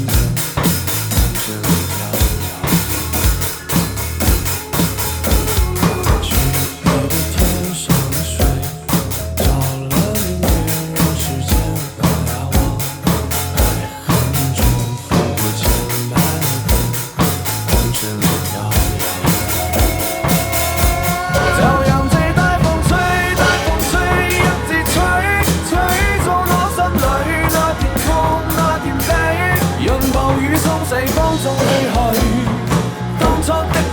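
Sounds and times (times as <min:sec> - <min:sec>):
drum kit playing: 0:00.0 - 0:33.9
rock backing track: 0:00.0 - 0:33.9
higher melody line: 0:15.9 - 0:33.9.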